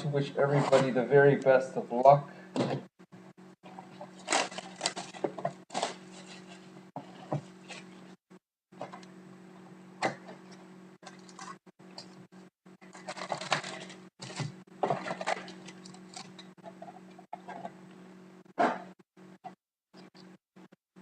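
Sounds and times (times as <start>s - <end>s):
card packaging rustling: 4.0s - 6.8s, 12.8s - 16.4s.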